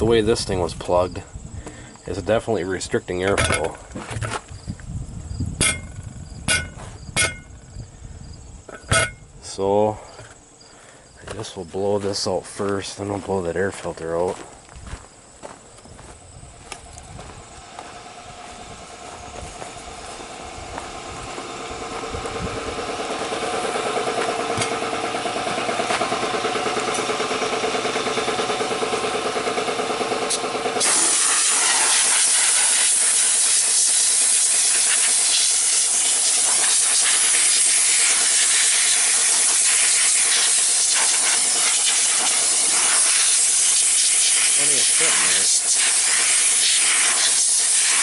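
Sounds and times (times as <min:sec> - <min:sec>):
air compressor running: 0:00.0 - 0:02.5, 0:03.3 - 0:11.3, 0:15.4 - 0:48.0
air blow gun hissing: 0:30.0 - 0:48.0.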